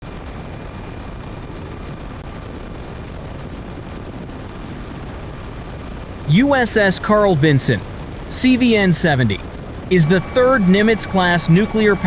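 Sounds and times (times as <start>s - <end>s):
faint high whine: 6.2s - 12.0s
jet engines roaring: 6.3s - 12.0s.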